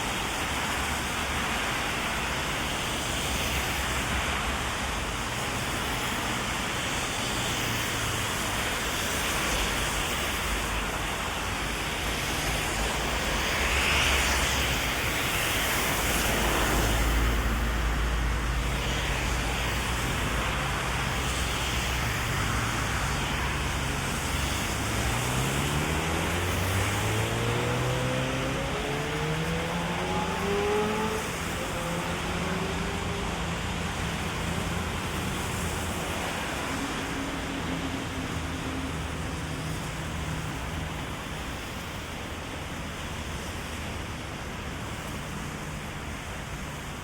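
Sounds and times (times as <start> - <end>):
heavy rain falling: 0.0 - 47.0
traffic on wet street: 0.0 - 47.0
car engine speeding up: 23.2 - 33.7.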